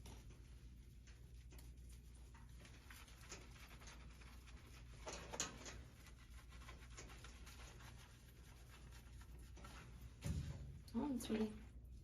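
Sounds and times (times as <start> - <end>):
faint taps and rustling: 0.0 - 7.8.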